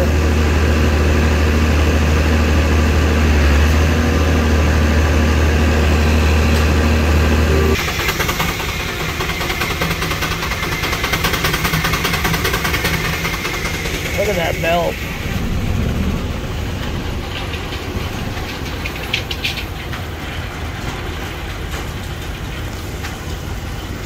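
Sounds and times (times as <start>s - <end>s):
pulsing engine sound: 0.0s - 20.2s
engine droning: 0.0s - 24.0s.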